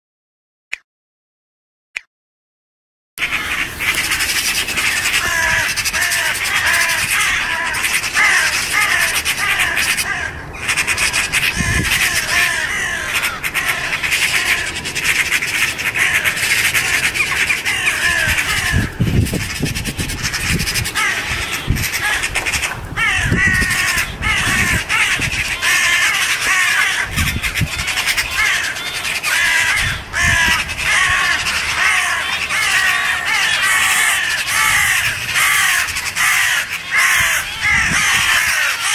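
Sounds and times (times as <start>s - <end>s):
jackdaws calling harshly: 3.2s - 38.9s.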